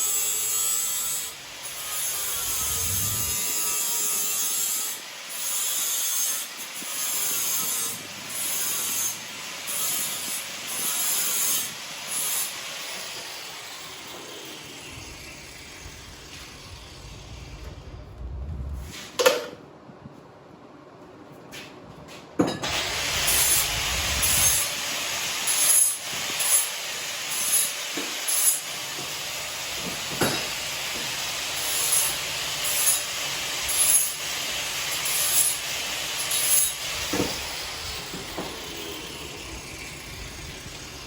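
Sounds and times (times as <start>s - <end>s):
tool scraping metal: 0.0s - 15.3s, 31.6s - 41.0s.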